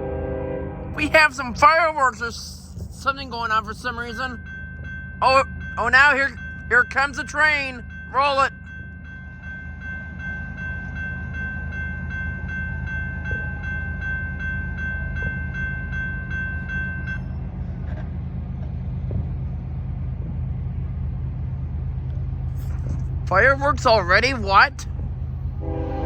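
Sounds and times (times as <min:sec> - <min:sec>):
freight train rumble: 0:00.0 - 0:26.0
railroad crossing bell ringing: 0:01.0 - 0:18.5, 0:22.4 - 0:25.0, 0:25.6 - 0:26.0.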